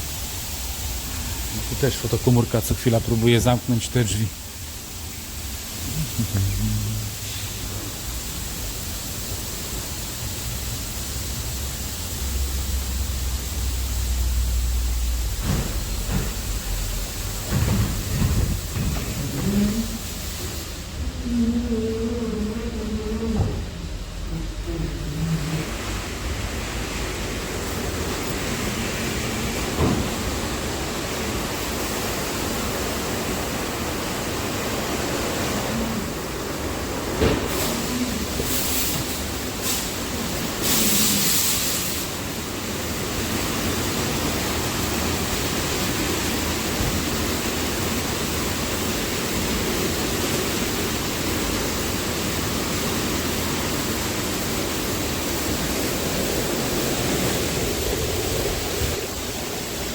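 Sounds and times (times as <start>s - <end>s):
loud hiss: 0.0s - 59.9s
knocks: 17.4s - 19.6s
water spray on car: 25.4s - 59.9s.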